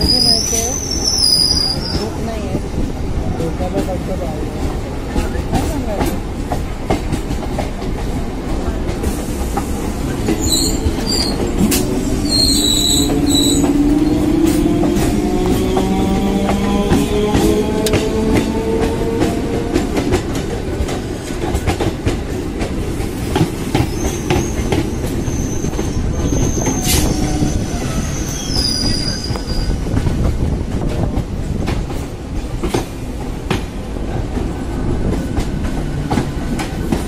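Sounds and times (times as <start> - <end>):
train rumble: 0.0 - 37.0
high wheel squeal: 10.4 - 11.4, 12.2 - 14.2, 23.8 - 29.8.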